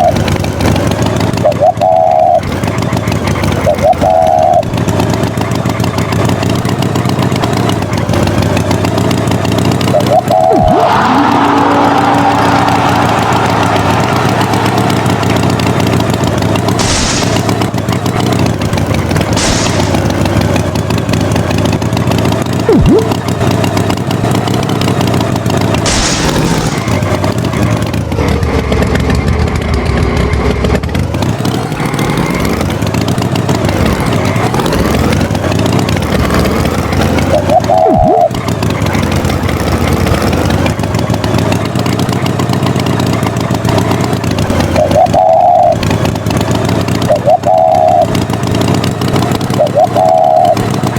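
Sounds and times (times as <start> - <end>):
tractor engine revving: 0.0 - 50.9.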